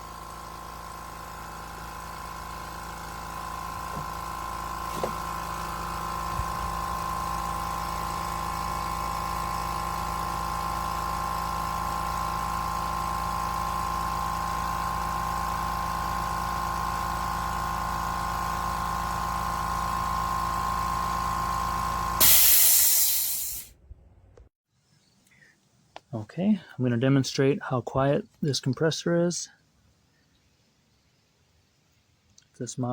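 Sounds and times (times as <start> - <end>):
electric air compressor running: 0.0 - 23.7
air hissing burst: 22.2 - 23.7.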